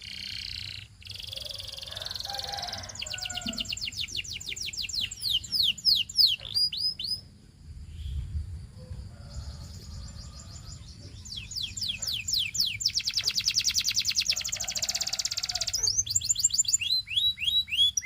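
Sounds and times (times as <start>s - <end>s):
canary singing: 0.0s - 7.3s, 9.6s - 18.0s
steady low rumble: 7.2s - 13.1s.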